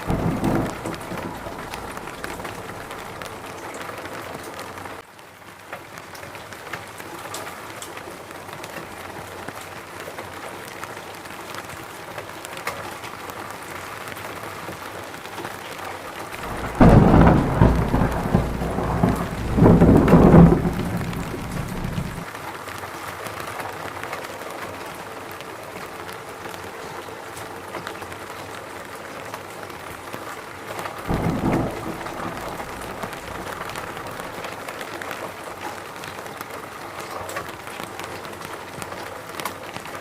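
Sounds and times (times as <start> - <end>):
thunder rolling: 0.0 - 3.7, 16.4 - 22.2, 31.1 - 34.7
rain falling: 0.0 - 40.0.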